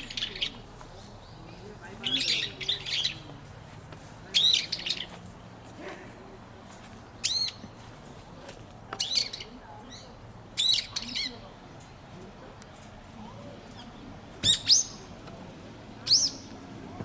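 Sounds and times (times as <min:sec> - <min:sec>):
high arching bird calls: 0:00.0 - 0:03.3, 0:04.3 - 0:05.2, 0:07.1 - 0:07.8, 0:09.0 - 0:11.5, 0:13.6 - 0:15.2, 0:16.0 - 0:16.6.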